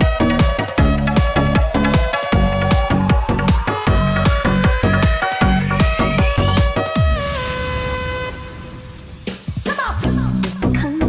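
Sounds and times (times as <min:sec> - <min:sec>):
kick drum beat: 0:00.0 - 0:07.2
synth tones: 0:00.0 - 0:09.0
electronic dance music: 0:00.0 - 0:11.0.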